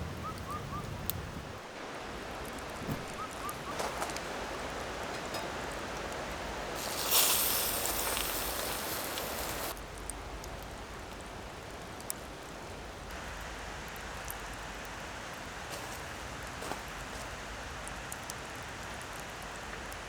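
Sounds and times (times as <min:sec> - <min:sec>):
campfire crackling: 0:00.0 - 0:20.0
loud hiss: 0:06.3 - 0:09.8.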